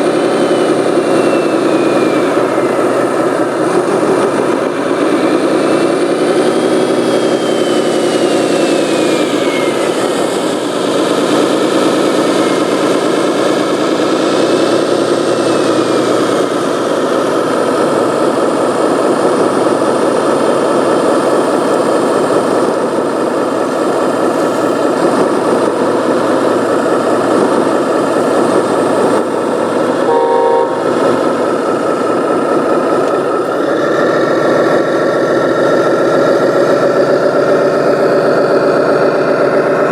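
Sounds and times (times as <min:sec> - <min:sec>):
model truck engines revving: 0:00.0 - 0:39.9
short horn toot: 0:30.1 - 0:31.3.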